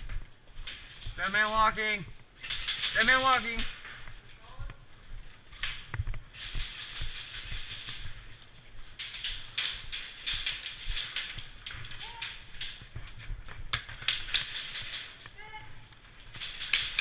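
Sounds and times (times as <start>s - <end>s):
airsoft guns firing: 16.6s - 17.0s.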